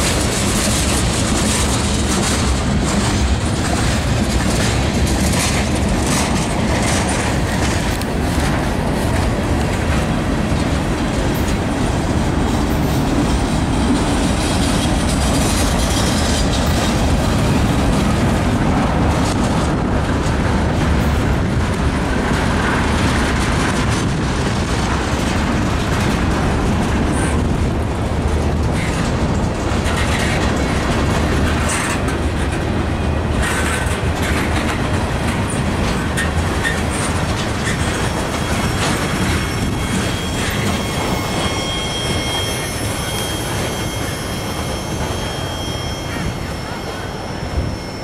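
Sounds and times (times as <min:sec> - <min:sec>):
train cars clanking: 0:00.0 - 0:48.0
train wheels rumbling on rail: 0:00.0 - 0:48.0
thin high squeal: 0:36.9 - 0:48.0.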